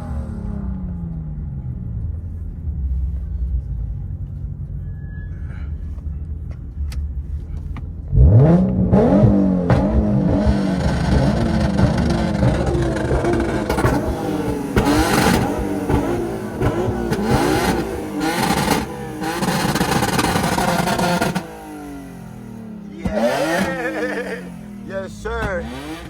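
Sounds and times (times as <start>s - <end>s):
car engine revving: 0.0s - 4.6s, 5.8s - 26.0s.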